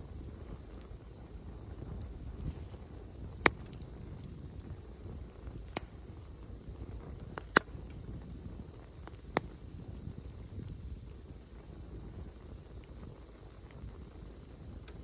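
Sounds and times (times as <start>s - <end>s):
wood fire crackling: 0.0s - 15.0s
sharp pops: 3.4s - 3.8s, 5.6s - 6.0s.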